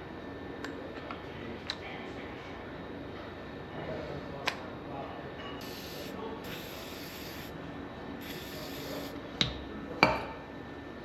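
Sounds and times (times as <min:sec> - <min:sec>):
pressurized spray hissing: 0:05.6 - 0:07.5, 0:08.2 - 0:09.2.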